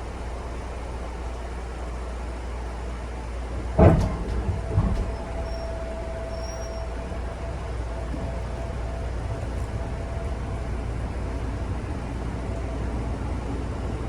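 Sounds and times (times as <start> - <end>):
train rumbling: 0.0 - 14.0
steady whine: 3.5 - 14.0
sharp clunks: 3.6 - 7.1.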